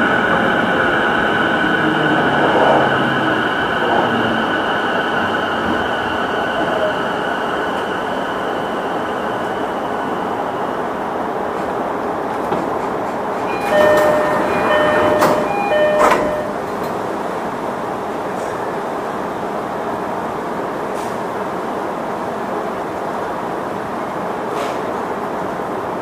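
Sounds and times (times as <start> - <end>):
train running noise: 0.0 - 21.8, 22.4 - 26.0
train doors clunking open: 11.5 - 17.0
electronic door chime: 13.5 - 16.6.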